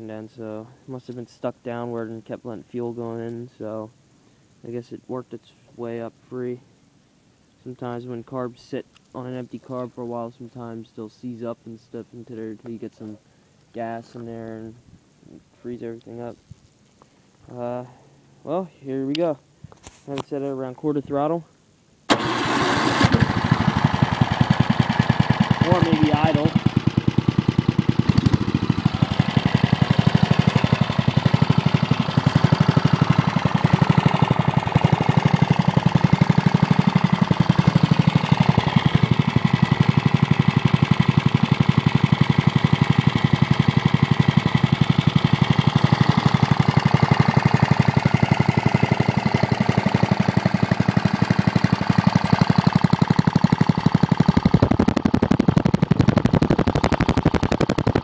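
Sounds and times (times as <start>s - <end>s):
small engine idling: 22.1s - 58.0s.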